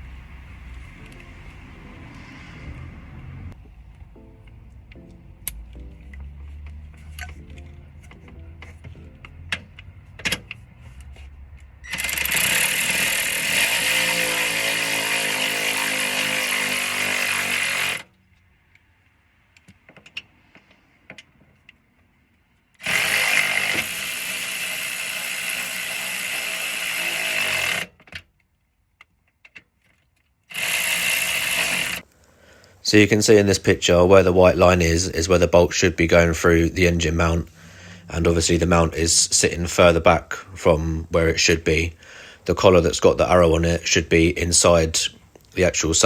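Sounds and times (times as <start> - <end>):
power tool running: 0.0 - 3.6, 11.6 - 18.1, 22.8 - 28.0, 30.5 - 32.0
tools clicking and tapping: 4.9 - 13.1.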